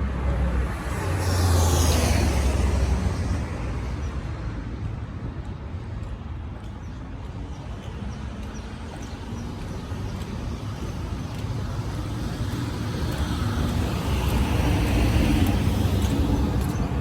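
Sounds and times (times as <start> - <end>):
vehicle passing: 0.0 - 4.6
wind and road vibration rumble: 0.0 - 17.0.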